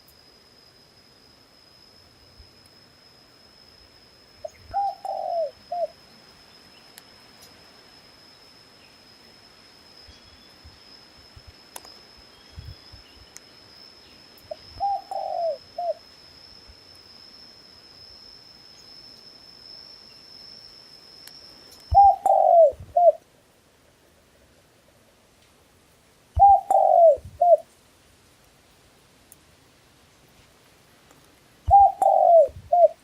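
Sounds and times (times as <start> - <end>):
dove cooing: 4.7 - 6.0, 14.8 - 16.0, 21.9 - 23.2, 26.4 - 27.6, 31.7 - 33.0.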